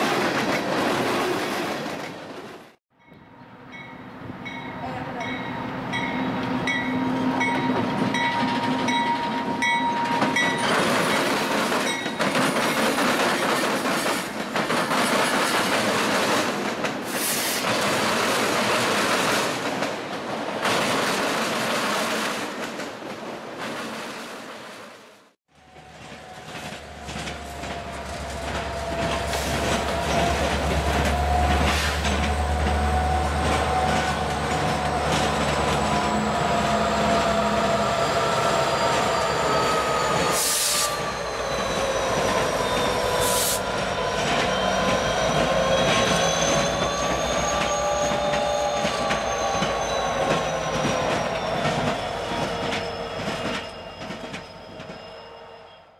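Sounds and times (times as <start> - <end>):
wheels squealing on rails: 5.6 - 19.5, 25.6 - 55.9
freight train rolling rumble: 25.6 - 55.7.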